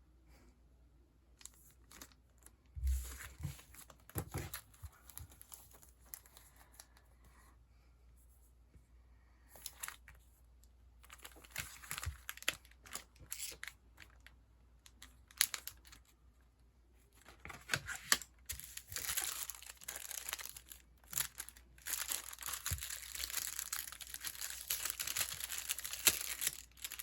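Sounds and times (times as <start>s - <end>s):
sticker packaging crinkling: 1.4s - 6.9s, 11.0s - 16.2s, 17.1s - 27.0s.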